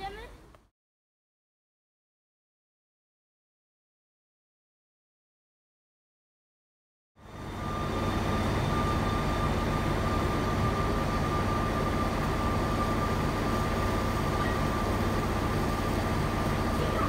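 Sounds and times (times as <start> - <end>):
electric train rumble: 7.2 - 17.0
high whine: 7.2 - 17.0.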